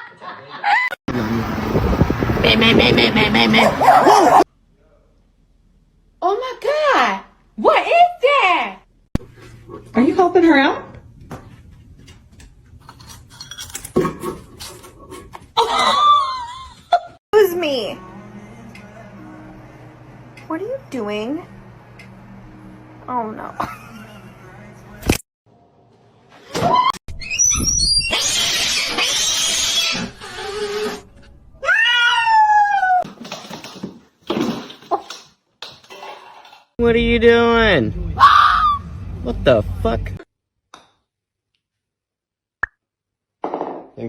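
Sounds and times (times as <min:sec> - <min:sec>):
cat yowling: 0:31.6 - 0:33.0.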